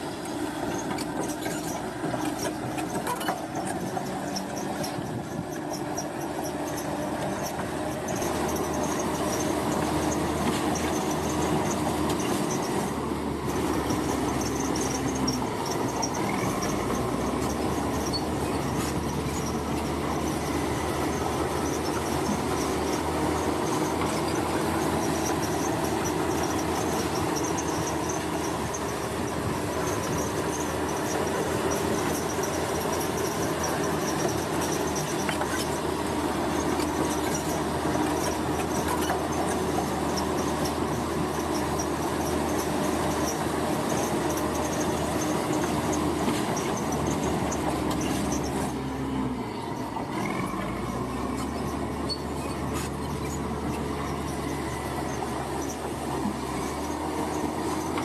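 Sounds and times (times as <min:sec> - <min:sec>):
construction machinery rumble: 0:00.0 - 0:58.0
faint high squeaks: 0:13.7 - 0:58.0.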